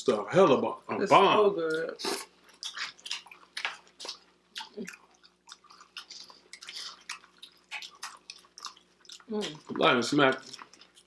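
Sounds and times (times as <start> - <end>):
chewing food: 1.6 - 11.0.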